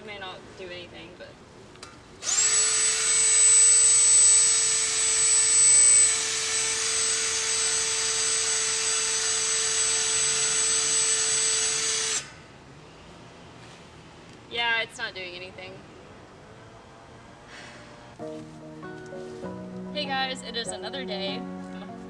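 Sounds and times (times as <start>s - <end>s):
wire brush power tool whine: 2.2s - 12.5s.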